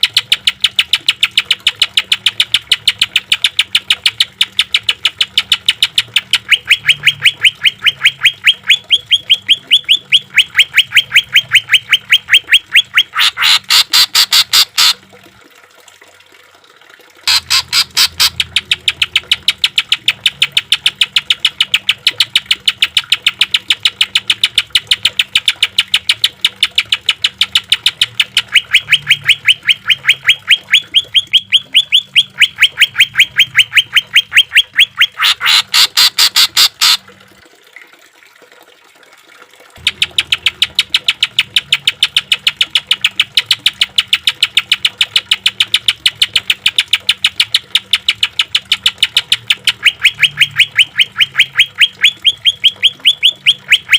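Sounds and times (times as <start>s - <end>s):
bird singing rapid rough notes: 17.3s - 24.0s, 26.7s - 37.0s.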